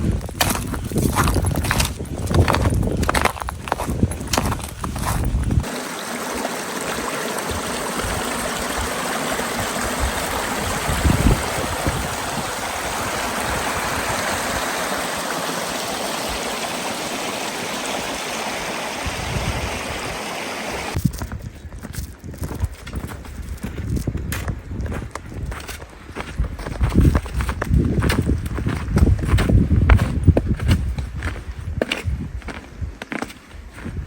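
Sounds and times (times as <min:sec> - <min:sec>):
running water: 0:04.1 - 0:21.0.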